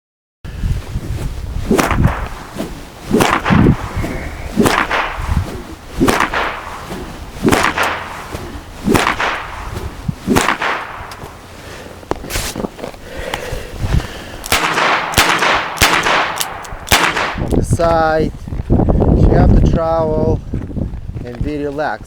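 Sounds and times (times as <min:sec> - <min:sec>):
wind rumble on microphone: 0:00.5 - 0:22.0
horse hooves crunching leaves: 0:01.3 - 0:10.4, 0:11.0 - 0:13.0.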